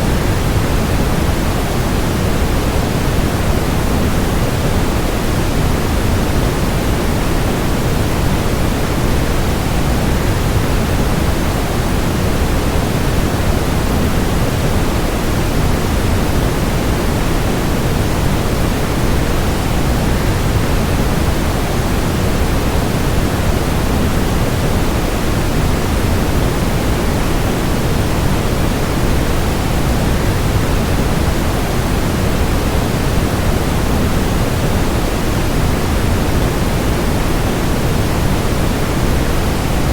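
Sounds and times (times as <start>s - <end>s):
white noise: 0.0s - 39.9s.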